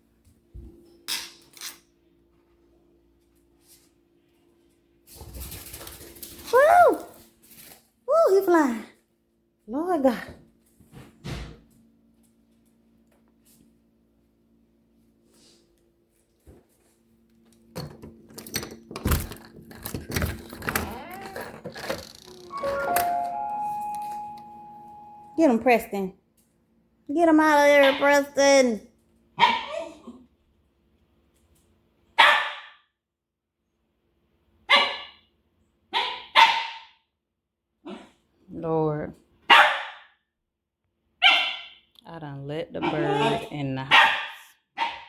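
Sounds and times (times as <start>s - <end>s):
room hum: 0.0s - 32.0s
objects knocking and clattering: 17.7s - 23.0s
dog barking: 29.4s - 29.8s, 32.2s - 32.7s, 34.7s - 35.2s, 35.9s - 36.9s, 39.5s - 40.1s, 41.2s - 41.8s, 42.8s - 45.0s.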